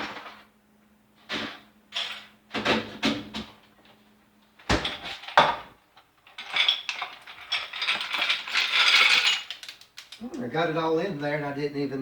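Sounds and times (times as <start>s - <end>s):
ice cubes clattering into blender: 6.4s - 9.9s.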